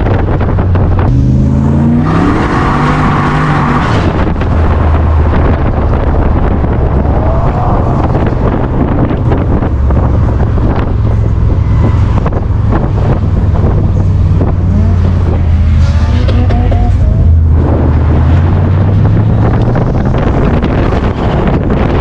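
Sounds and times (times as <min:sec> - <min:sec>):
car engine running: 0:00.0 - 0:22.0
wind buffeting microphone: 0:00.0 - 0:22.0.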